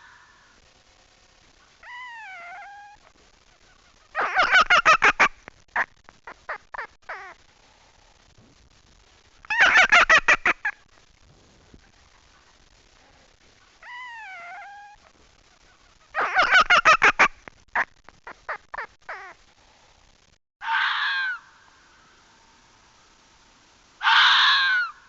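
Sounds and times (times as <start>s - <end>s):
animal wavering pitched cries: 1.8s - 3.0s, 13.8s - 15.0s.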